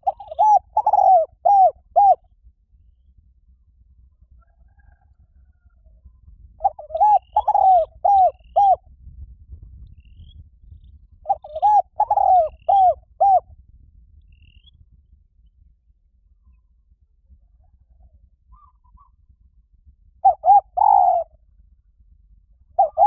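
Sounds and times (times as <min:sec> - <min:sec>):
dove cooing: 0:00.0 - 0:02.2, 0:06.6 - 0:08.8, 0:11.2 - 0:13.4, 0:20.2 - 0:21.4, 0:22.8 - 0:23.0.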